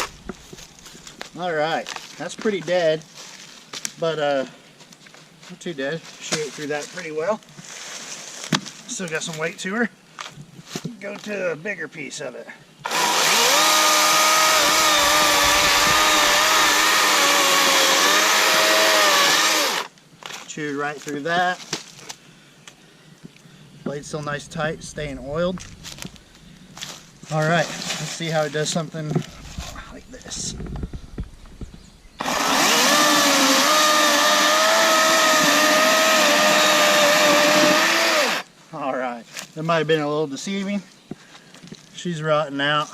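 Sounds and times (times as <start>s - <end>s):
chainsaw cutting wood: 12.8s - 19.9s, 32.2s - 38.5s.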